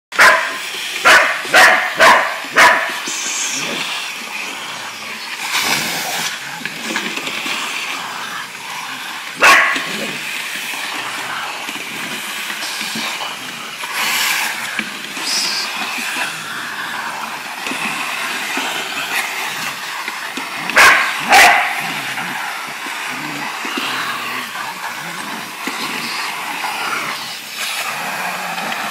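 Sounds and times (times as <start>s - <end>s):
vacuum cleaner whirring: 0.1s - 28.9s
dog barking: 0.2s - 3.0s, 9.4s - 9.9s, 20.8s - 21.8s.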